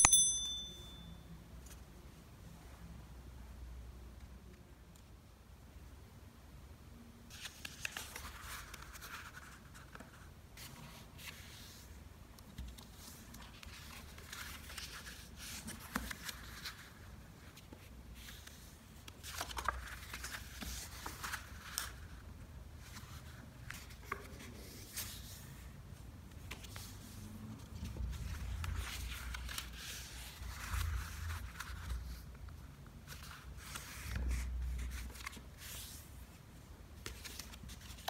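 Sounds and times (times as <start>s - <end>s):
paper being folded and creased: 7.3s - 22.2s, 22.8s - 25.7s, 26.4s - 36.2s, 37.0s - 38.0s.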